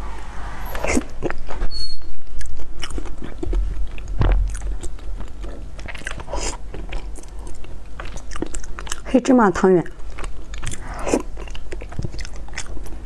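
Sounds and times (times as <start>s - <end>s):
wet chewing mouth clicks: 2.4s - 9.1s, 9.9s - 13.0s.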